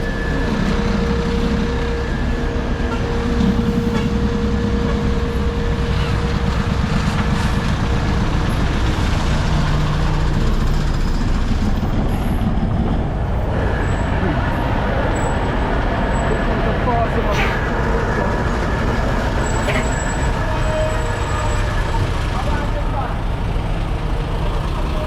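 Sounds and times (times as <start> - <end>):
heavy vehicle engines rumbling: 0.0 - 25.0
passing traffic: 0.0 - 25.0.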